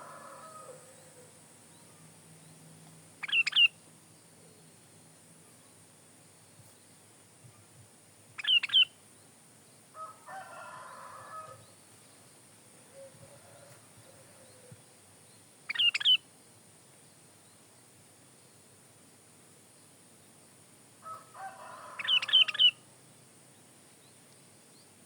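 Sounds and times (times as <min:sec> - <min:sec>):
bird song phrases: 0:00.0 - 0:09.9, 0:10.5 - 0:16.2, 0:21.6 - 0:22.8.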